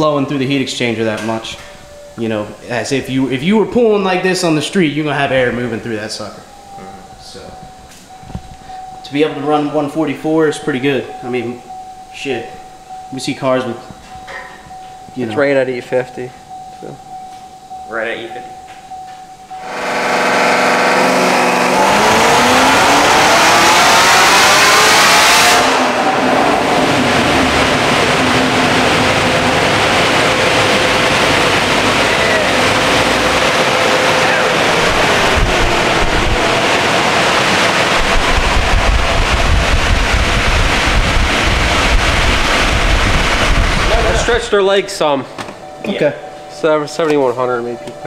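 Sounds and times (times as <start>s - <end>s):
dyno rollers whining: 0.0s - 48.0s
supercharged engine revving: 19.6s - 44.7s
low rumble: 25.7s - 44.8s.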